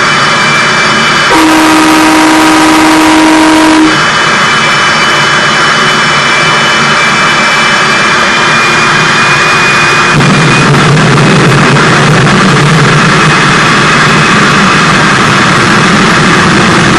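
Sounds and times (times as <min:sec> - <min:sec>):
jet engine running loud: 0:00.0 - 0:16.9
horn: 0:01.3 - 0:04.0.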